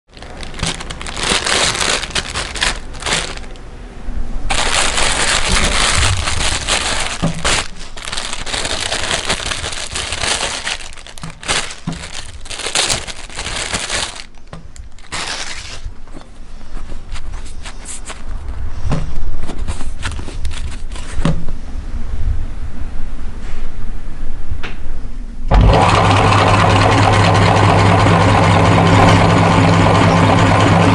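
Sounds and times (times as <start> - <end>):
meat grinder crunching plastic: 0.1 - 3.6, 4.5 - 15.9, 25.5 - 30.9.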